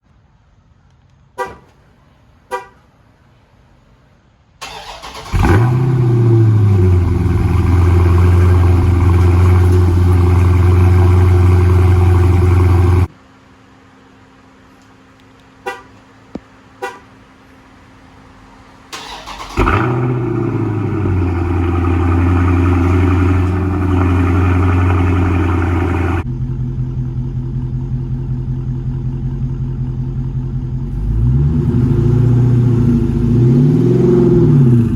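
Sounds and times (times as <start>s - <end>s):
car horn chirps: 1.4s - 1.8s, 2.5s - 2.9s, 15.6s - 16.0s, 16.8s - 17.2s
engine cranking and starting: 4.6s - 11.4s, 18.9s - 26.2s
engine idling loudly: 21.2s - 31.1s.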